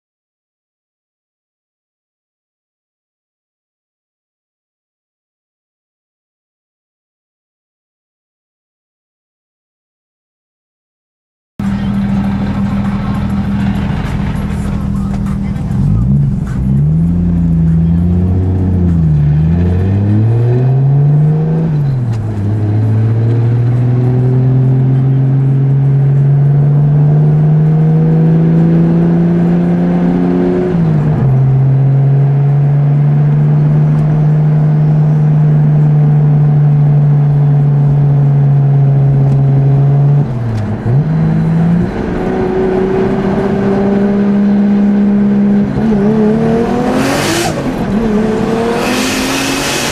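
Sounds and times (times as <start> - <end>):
turbocharged car engine accelerating: 11.6 - 49.9.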